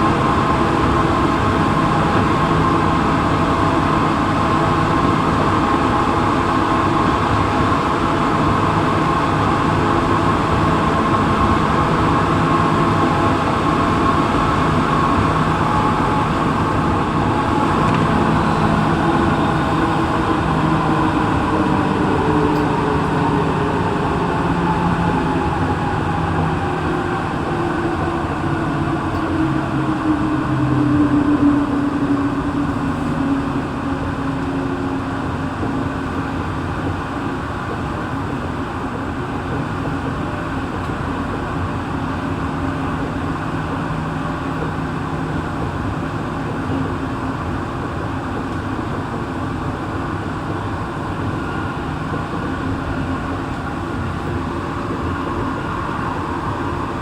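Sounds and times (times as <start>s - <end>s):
traction motor whine: 0.0s - 35.4s
train interior rumble: 0.0s - 57.0s.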